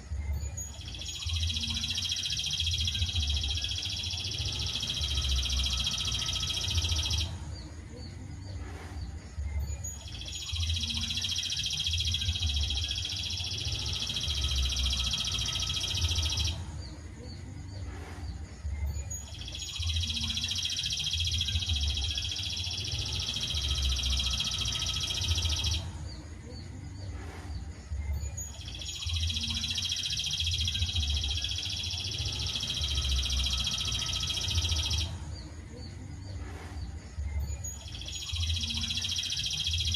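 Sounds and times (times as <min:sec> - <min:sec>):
songbird trilling: 0:00.5 - 0:07.3, 0:09.8 - 0:16.6, 0:19.0 - 0:25.8, 0:28.3 - 0:35.1, 0:37.5 - 0:39.9.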